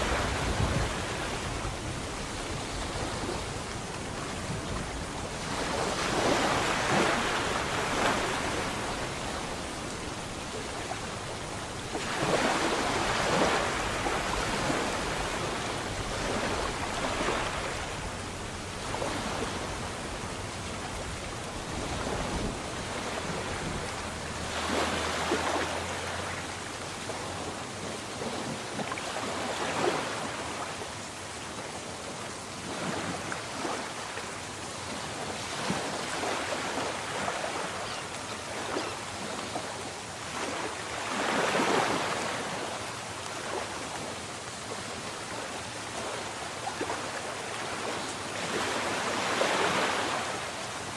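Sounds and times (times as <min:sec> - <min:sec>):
sea waves breaking: 0:00.0 - 0:50.9.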